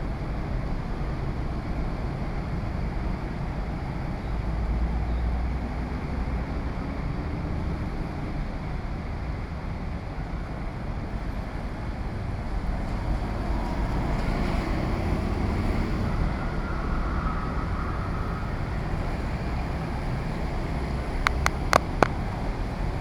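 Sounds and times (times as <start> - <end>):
passing street traffic: 0.0 - 23.0
sharp clicks: 21.2 - 22.2.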